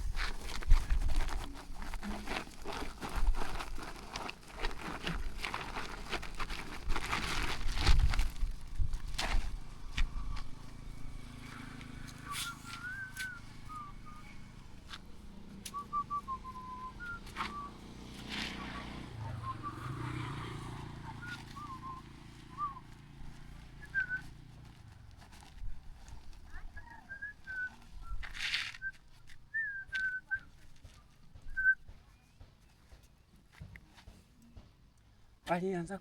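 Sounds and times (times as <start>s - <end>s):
chirping whistle-like notes: 12.1s - 14.5s, 15.7s - 17.8s.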